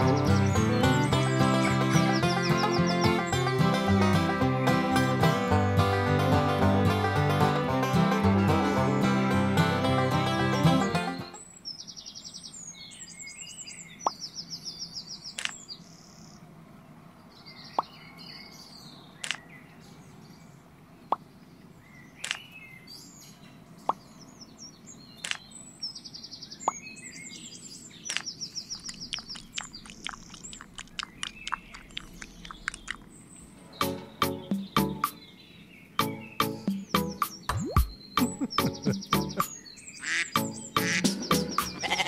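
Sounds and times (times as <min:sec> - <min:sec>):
small birds trilling: 0:00.0 - 0:08.0, 0:08.6 - 0:42.0
sharp ticks or plops: 0:28.1 - 0:33.1, 0:36.6 - 0:39.5.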